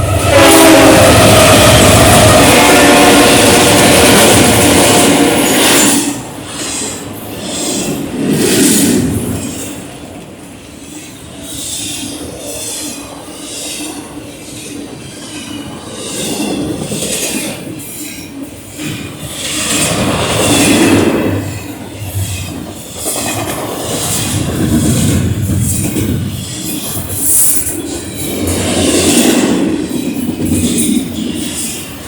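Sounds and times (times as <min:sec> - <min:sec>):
freight train rumbling on rails: 0:00.0 - 0:32.0.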